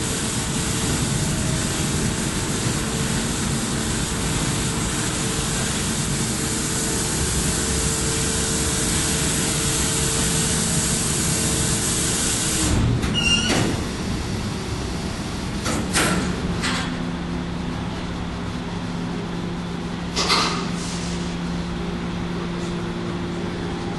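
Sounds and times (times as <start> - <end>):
machinery drone with hum: 0.0 - 23.9
squealing clatter: 13.0 - 13.8.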